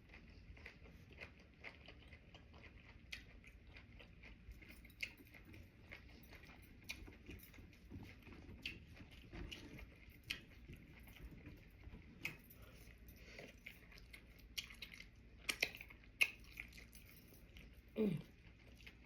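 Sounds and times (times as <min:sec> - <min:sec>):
person chewing food: 0:00.0 - 0:19.0
wet mouth clicks and smacks: 0:14.5 - 0:16.8.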